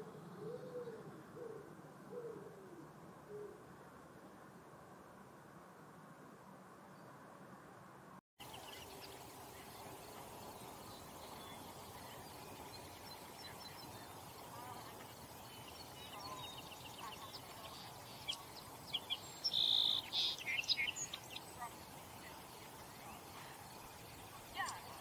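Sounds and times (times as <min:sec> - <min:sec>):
outdoor background hiss: 0:00.0 - 0:25.0
birds chirping and calling: 0:08.5 - 0:25.0.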